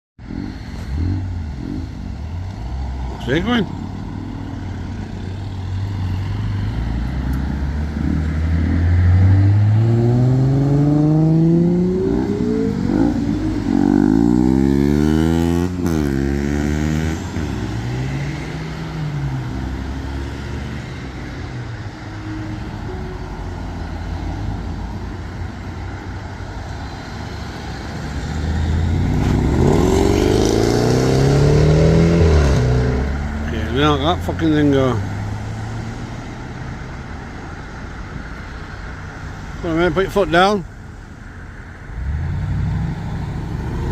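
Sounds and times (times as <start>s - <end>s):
car engine revving: 0.2s - 24.8s, 26.8s - 36.8s.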